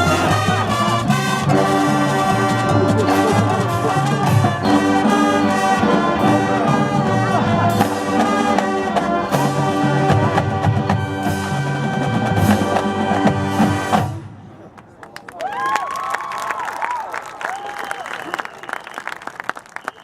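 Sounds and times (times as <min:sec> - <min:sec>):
brass playing melody: 0:00.0 - 0:14.3
marching drums and percussion: 0:00.0 - 0:14.3.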